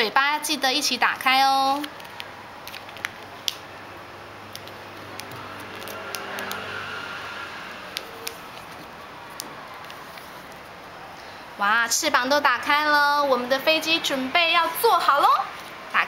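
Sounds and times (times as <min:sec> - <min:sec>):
paper rustling and crackling: 0:08.0 - 0:10.6.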